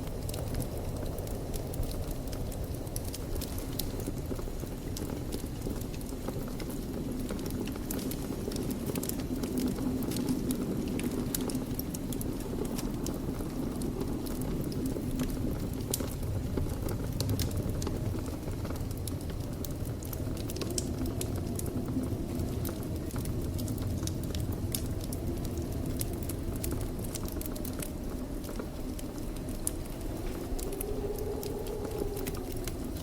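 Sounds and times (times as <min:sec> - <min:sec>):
crackles and pops of fire: 0:00.0 - 0:33.0
fire burning in fireplace: 0:00.0 - 0:33.0.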